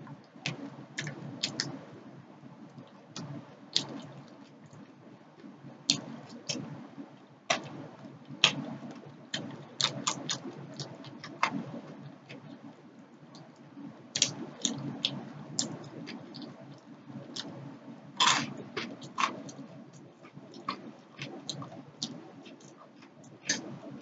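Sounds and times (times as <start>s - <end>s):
soft chewing: 2.6s - 24.0s.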